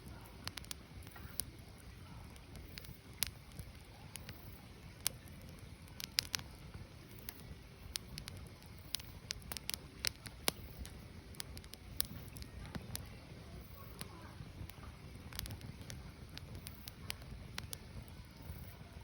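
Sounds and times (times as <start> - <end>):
firewood crackling and popping: 0.0 - 19.0
low fire rumble: 0.0 - 19.0.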